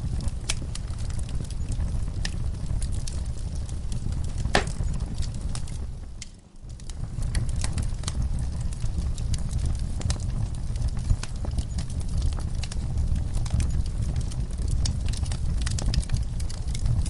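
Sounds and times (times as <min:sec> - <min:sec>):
fire crackling: 0:00.0 - 0:17.0.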